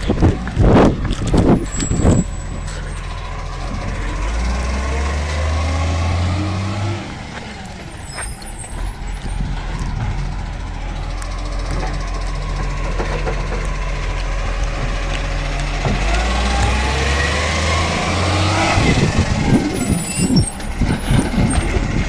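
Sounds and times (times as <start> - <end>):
garbage truck engine revving: 0.0 - 22.0
loud knocks: 8.8 - 18.0.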